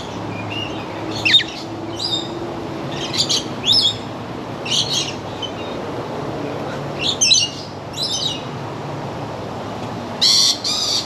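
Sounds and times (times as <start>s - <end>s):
parrots squawking and chirping: 0.0s - 2.3s, 10.2s - 11.0s.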